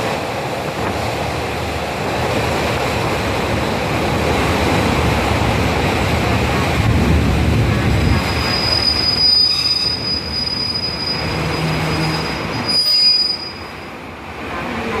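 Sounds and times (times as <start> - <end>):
moving train rumble: 0.0 - 15.0
train wheels squealing: 8.2 - 13.8.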